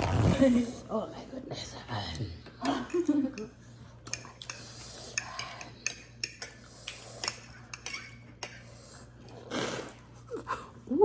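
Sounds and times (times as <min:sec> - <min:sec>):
cutlery clinking on plates: 0:04.1 - 0:08.7.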